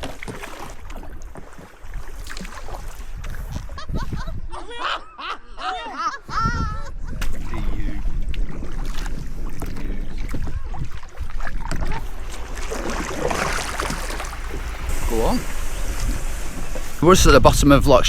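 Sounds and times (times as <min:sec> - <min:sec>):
paddle splashes and knocks: 0:00.0 - 0:03.8, 0:07.2 - 0:17.0
wind buffeting microphone: 0:01.1 - 0:04.6, 0:06.3 - 0:18.0.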